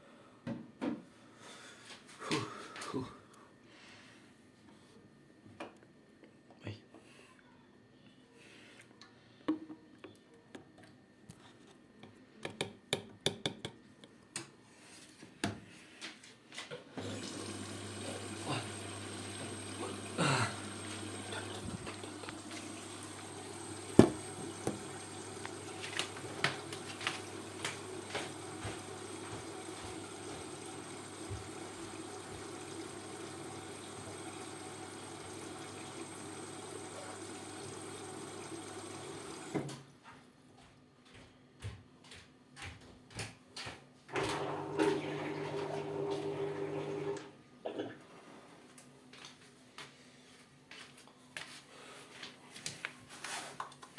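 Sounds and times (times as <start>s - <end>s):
water inlet hum: 17.0s - 39.6s, 44.2s - 47.3s
water running into machine: 17.0s - 39.7s, 44.1s - 47.3s
knocks inside washing machine: 24.0s - 24.9s
washing machine clicks and taps: 24.0s - 24.9s.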